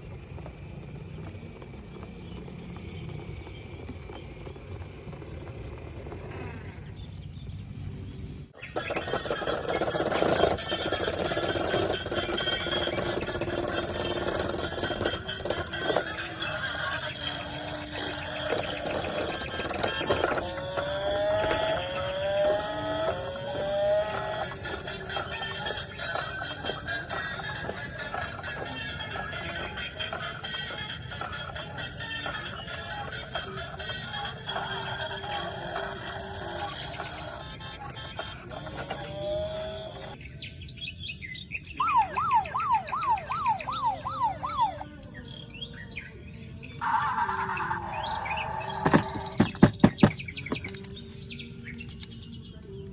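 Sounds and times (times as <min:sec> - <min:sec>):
electronic rising tone: 0:08.6 - 0:40.2, 0:41.8 - 0:44.8
high chirps: 0:08.6 - 0:40.2, 0:41.8 - 0:44.8
plastic toys clicking and rattling: 0:08.7 - 0:23.5, 0:24.1 - 0:39.8, 0:48.7 - 0:52.6.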